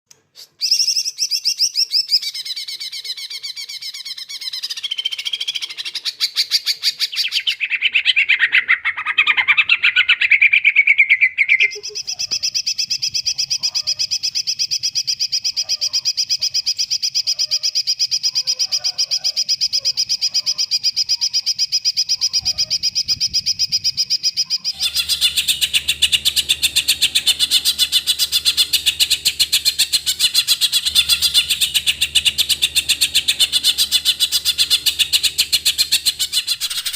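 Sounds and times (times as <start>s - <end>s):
bird singing rapid trills: 0.6s - 36.9s
low steady hum: 24.8s - 36.6s.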